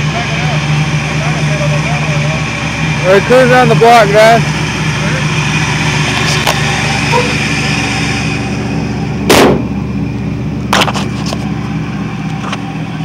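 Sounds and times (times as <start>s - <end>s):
car exhaust running: 0.0s - 13.0s
exhaust bang: 1.2s - 10.0s.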